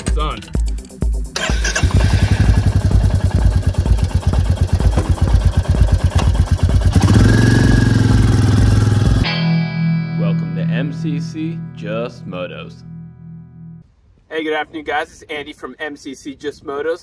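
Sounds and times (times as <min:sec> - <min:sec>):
motorcycle engine idling: 0:01.4 - 0:09.3.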